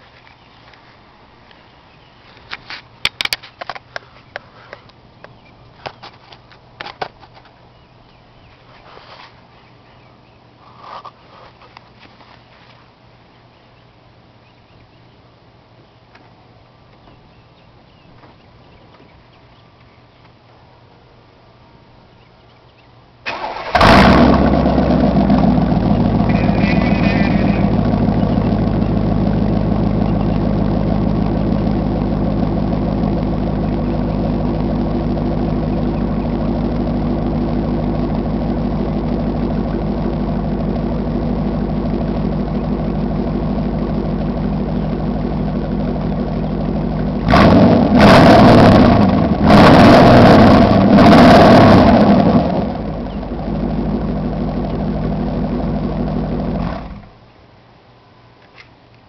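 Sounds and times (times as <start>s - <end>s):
car engine revving: 23.3s - 57.1s
car engine idling: 23.3s - 57.3s.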